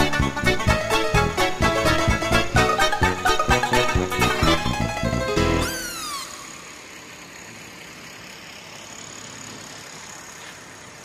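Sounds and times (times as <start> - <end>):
music: 0.0 - 6.4
city street traffic: 0.0 - 11.0
short falling tone: 2.6 - 7.0.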